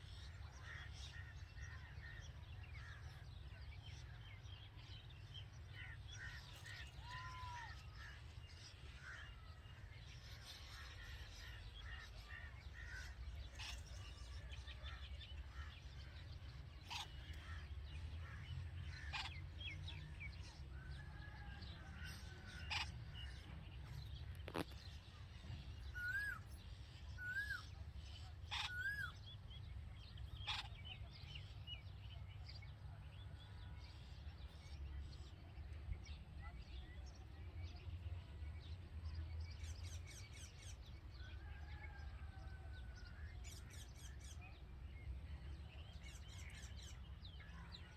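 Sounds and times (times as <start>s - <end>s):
bulbuls chirping and calling: 5.5s - 35.7s.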